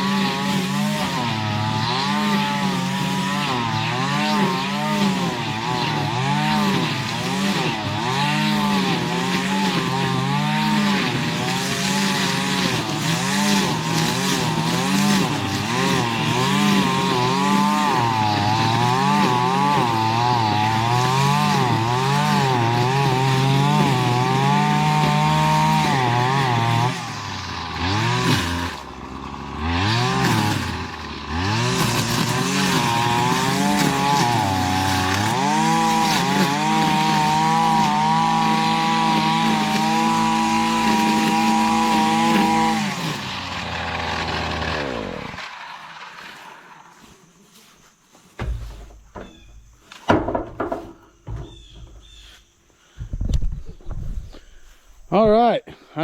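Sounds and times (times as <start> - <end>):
string trimmer engine revving: 0.0 - 49.5.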